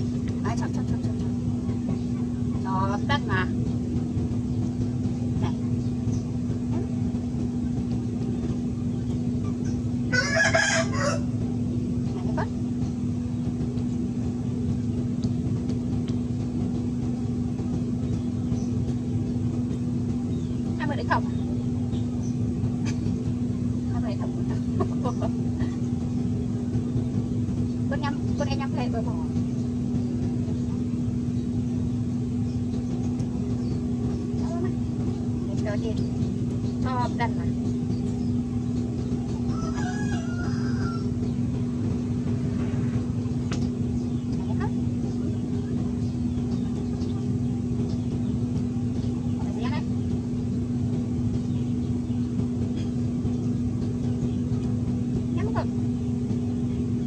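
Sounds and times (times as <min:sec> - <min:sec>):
low hum and rumble: 0:00.0 - 0:57.0
motor drone: 0:00.0 - 0:57.0
rooster crowing: 0:10.1 - 0:11.4, 0:39.5 - 0:41.3.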